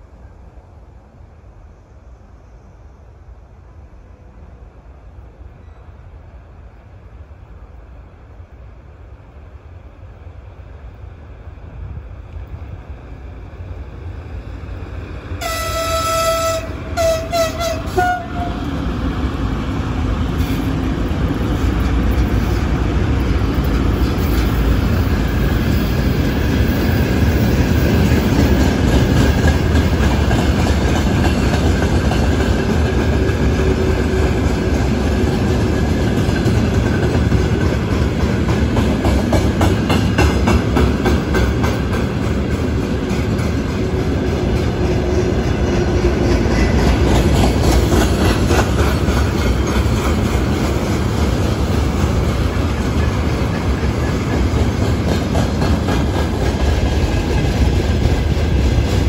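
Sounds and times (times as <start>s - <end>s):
freight train rumbling past: 0.0s - 59.0s
locomotive horn: 15.4s - 18.7s
wheels clacking over rail joints: 15.4s - 59.0s.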